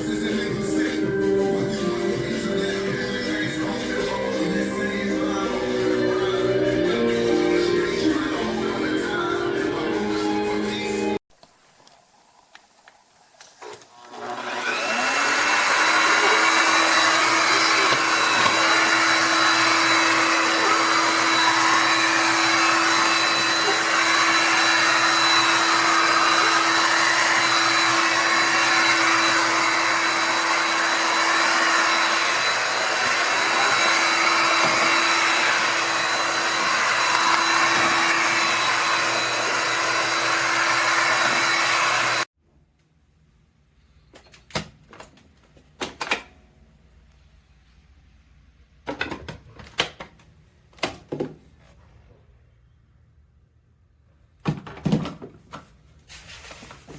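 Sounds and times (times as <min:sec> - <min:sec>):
vacuum mop motor whining: 0:13.6 - 0:42.3.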